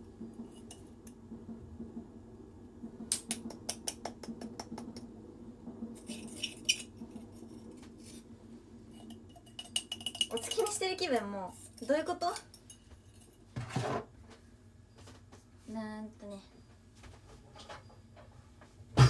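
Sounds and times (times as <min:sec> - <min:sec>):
low background hum: 0:00.0 - 0:19.0
utensil clicking against bowl: 0:03.1 - 0:05.1.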